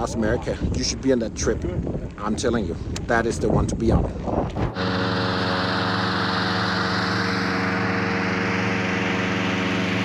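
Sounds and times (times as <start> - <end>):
rush of air: 4.4 - 10.0
small engine humming: 4.7 - 10.0.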